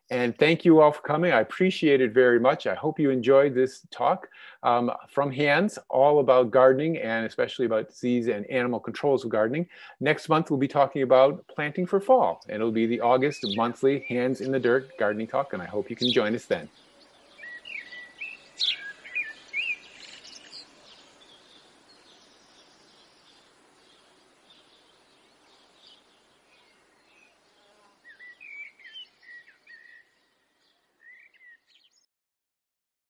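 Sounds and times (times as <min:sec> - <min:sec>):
faint steady high hiss: 0:00.0 - 0:30.6
small birds chirping: 0:12.2 - 0:32.1.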